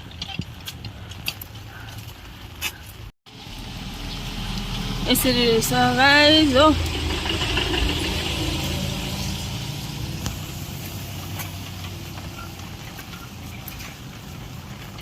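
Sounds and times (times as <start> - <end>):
vehicle engine idling: 3.3 - 15.0.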